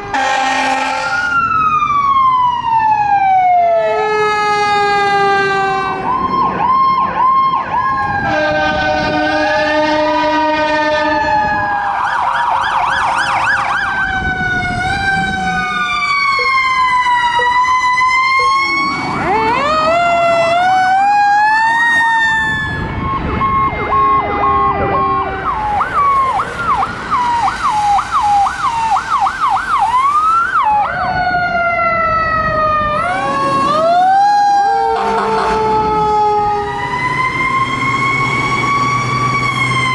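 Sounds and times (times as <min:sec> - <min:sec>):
horn-like siren blast: 0:00.0 - 0:02.5, 0:03.1 - 0:39.9
electronic sirens wailing: 0:00.0 - 0:39.9
truck engines: 0:00.0 - 0:39.9.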